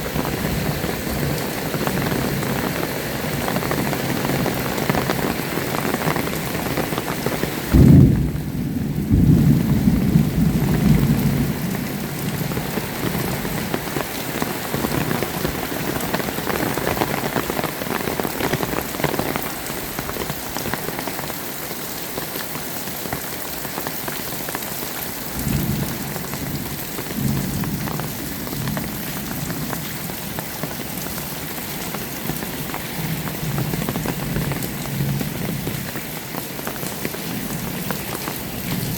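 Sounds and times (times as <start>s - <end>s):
heavy rain: 0.0s - 38.9s
thunder rumbling: 7.7s - 13.7s.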